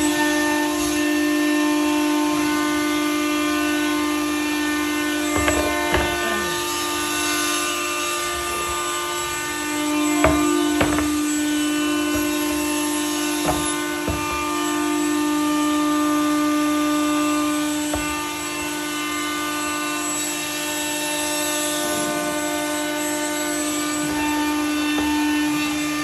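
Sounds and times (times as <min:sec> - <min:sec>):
short knocks and taps: 0:05.4 - 0:06.2, 0:10.2 - 0:11.4.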